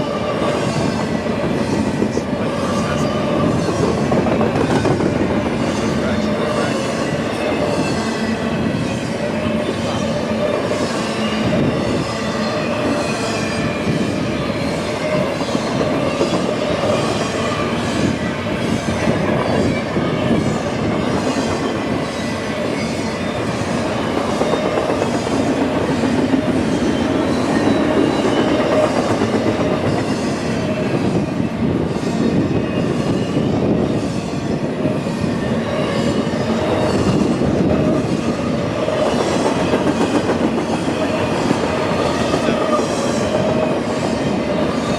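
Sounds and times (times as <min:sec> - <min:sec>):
train wheels clattering over rails: 0:00.0 - 0:44.9.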